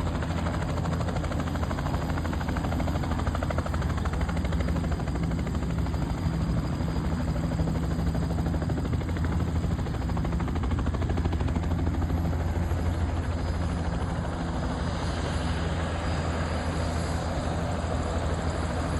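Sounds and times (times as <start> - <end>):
helicopter rotor beating: 0.0 - 18.9.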